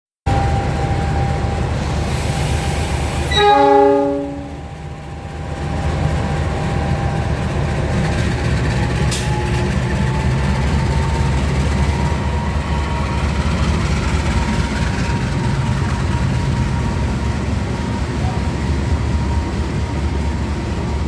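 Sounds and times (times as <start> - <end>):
locomotive engine rumbling: 0.3 - 21.0
locomotive horn: 2.6 - 4.7.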